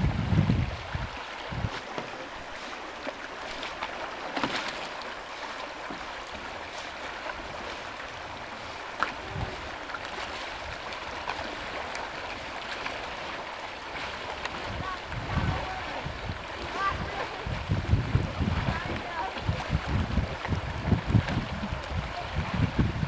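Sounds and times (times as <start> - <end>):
water rushing around a canoe: 0.0 - 23.0
sharp splashes or knocks: 3.0 - 5.1.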